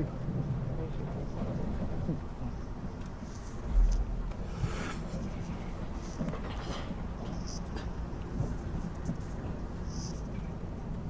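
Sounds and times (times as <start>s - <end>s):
train wheels rumbling: 1.0s - 8.8s
low thump: 3.6s - 5.7s.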